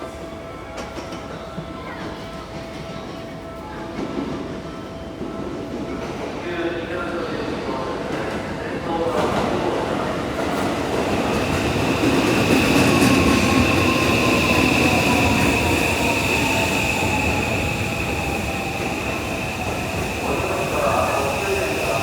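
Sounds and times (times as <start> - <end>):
train inverter whine: 11.0 - 22.0.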